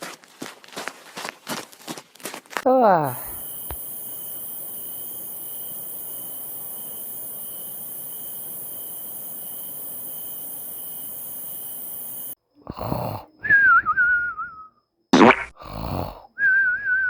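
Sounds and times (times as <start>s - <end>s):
steady hiss with faint high tone: 3.7s - 12.4s
cartoon snoring sound effect: 12.6s - 13.3s, 15.2s - 16.4s
wavering whistle falling in pitch: 13.5s - 14.7s, 16.4s - 17.0s.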